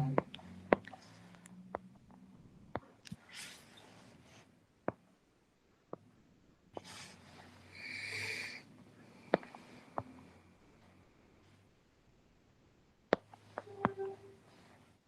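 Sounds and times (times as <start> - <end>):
breathy sniff: 6.8 - 10.0.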